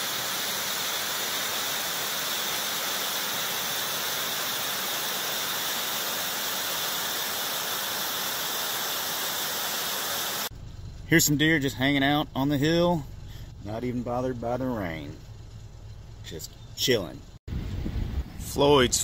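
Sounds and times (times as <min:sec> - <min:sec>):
water rushing: 0:00.0 - 0:10.5.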